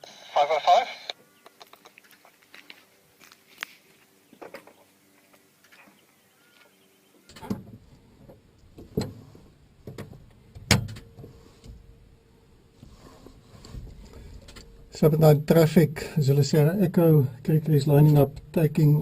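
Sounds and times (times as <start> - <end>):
knocks and clunks: 7.3 - 12.0.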